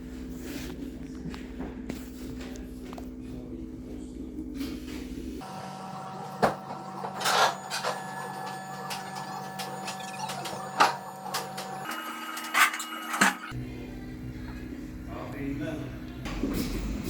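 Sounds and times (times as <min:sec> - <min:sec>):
machine hum: 0:01.1 - 0:17.0.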